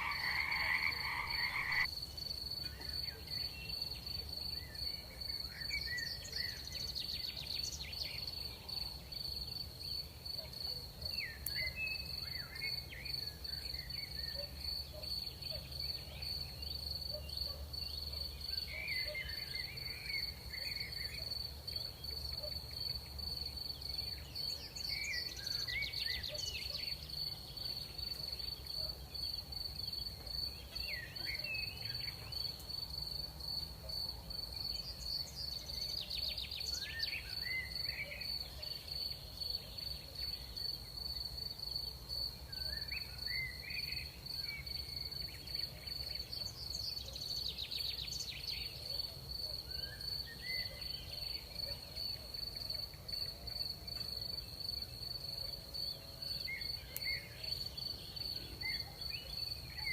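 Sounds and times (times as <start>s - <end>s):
animal rising chirps: 0.0s - 1.9s
crickets chirring: 0.0s - 59.9s.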